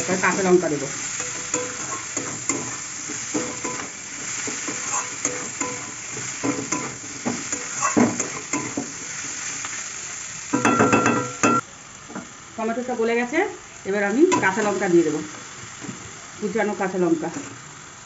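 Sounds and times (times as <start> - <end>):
vegetables sizzling in oil: 0.0 - 18.0
steel spatula scraping pan: 1.2 - 8.8.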